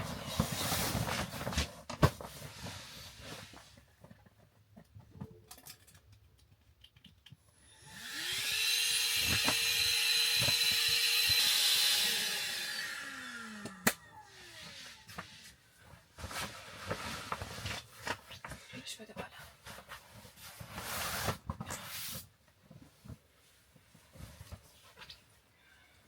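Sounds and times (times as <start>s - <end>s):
electric air pump whining: 7.6s - 15.5s.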